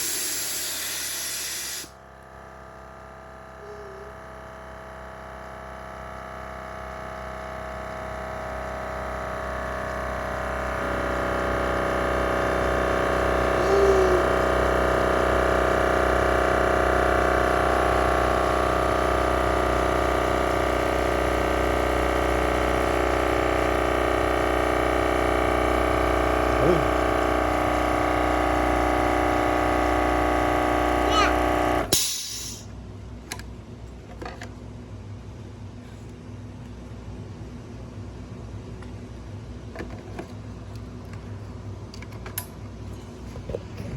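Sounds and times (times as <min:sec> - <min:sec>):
air hiss: 0:00.0 - 0:01.9, 0:31.9 - 0:32.7
air compressor motor whine: 0:00.0 - 0:43.9.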